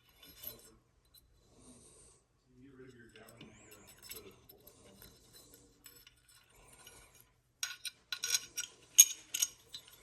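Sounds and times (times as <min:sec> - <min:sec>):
small metal parts clinking: 0:05.8 - 0:10.0.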